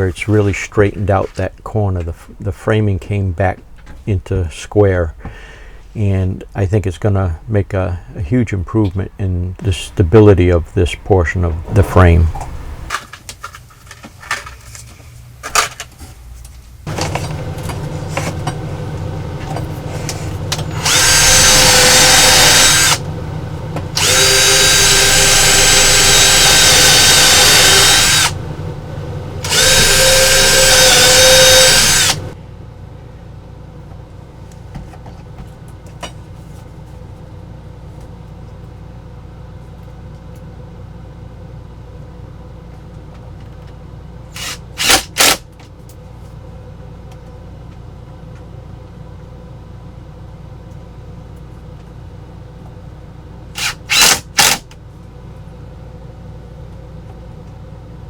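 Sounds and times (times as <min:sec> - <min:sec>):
power drill driving screws: 0:20.8 - 0:23.0, 0:24.0 - 0:28.4, 0:29.4 - 0:32.2, 0:44.4 - 0:45.4, 0:53.6 - 0:54.6.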